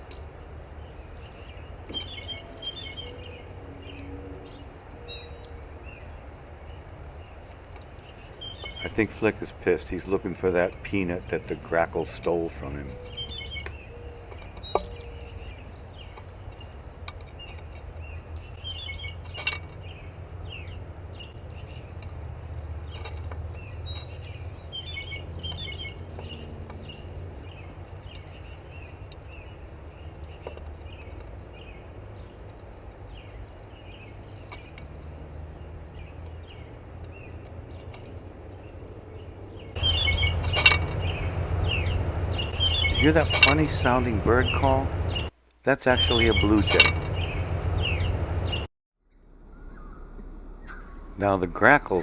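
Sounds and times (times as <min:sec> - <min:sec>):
small birds chirping: 0:00.0 - 0:48.7, 0:49.4 - 0:52.0
jay's squeaky call: 0:39.8 - 0:45.3, 0:45.9 - 0:48.6
steady low rumble: 0:39.8 - 0:52.0.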